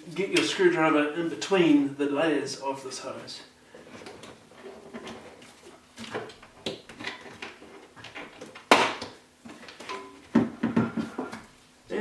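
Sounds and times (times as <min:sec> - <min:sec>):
rubber hose scraping: 0:03.7 - 0:08.5.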